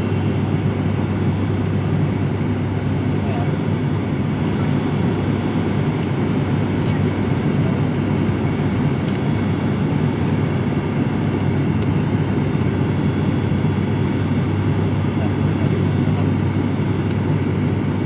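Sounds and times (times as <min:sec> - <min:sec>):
airliner engine drone in cabin: 0:00.0 - 0:18.0.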